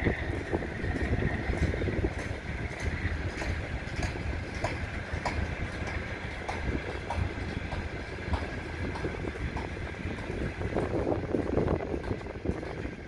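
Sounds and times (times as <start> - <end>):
steady low rumble: 0.0 - 13.0
train wheels clicking over rail joints: 0.0 - 13.0.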